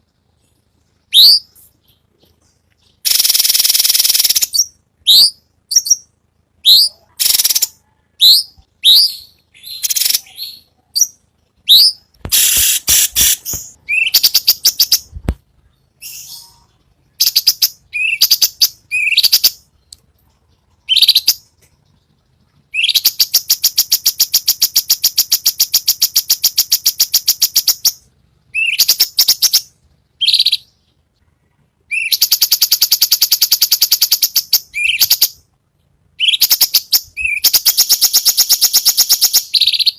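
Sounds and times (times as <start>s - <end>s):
bird whistled calls: 3.0s - 15.1s, 31.9s - 35.3s, 36.2s - 39.9s.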